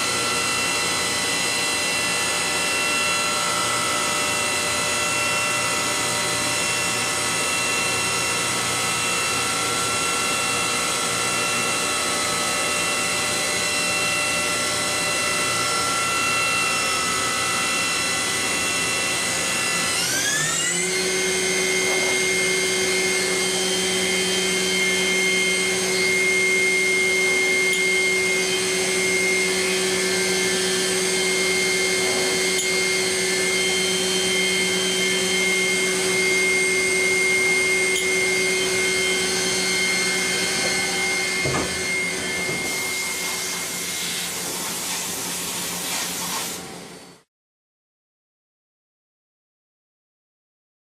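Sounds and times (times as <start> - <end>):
milling machine spindle whining: 0.0 - 44.8
hiss of machine noise: 42.8 - 46.7.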